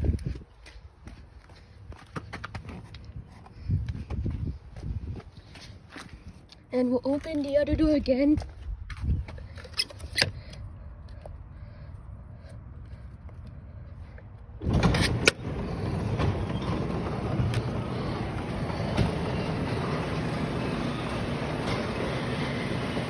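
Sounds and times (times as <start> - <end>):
garage door opener running: 14.6 - 23.0.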